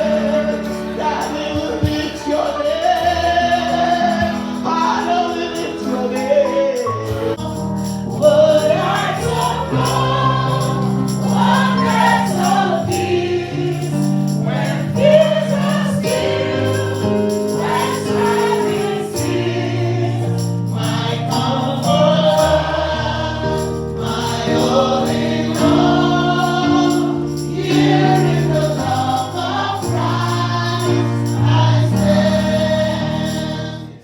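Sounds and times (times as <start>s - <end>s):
choir singing gospel music: 0.0s - 34.0s.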